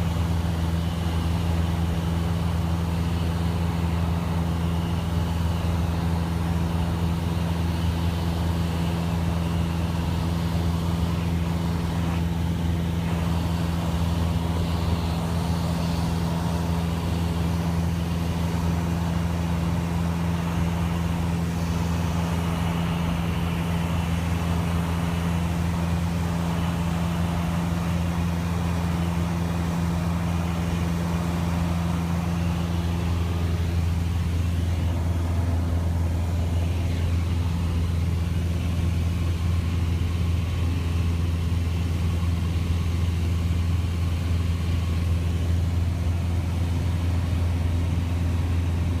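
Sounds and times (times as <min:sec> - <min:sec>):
airplane engine droning: 0:00.0 - 0:49.0.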